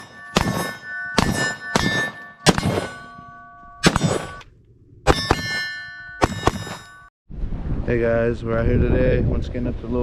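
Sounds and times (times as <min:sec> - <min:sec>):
sharp metallic clangs: 0:00.0 - 0:07.1.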